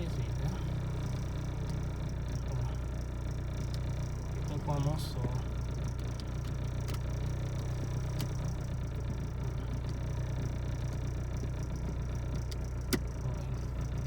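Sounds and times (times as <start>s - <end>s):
car engine idling: 0.0s - 14.0s
light clicks of fan parts: 1.5s - 2.7s, 3.6s - 11.1s, 11.7s - 14.0s.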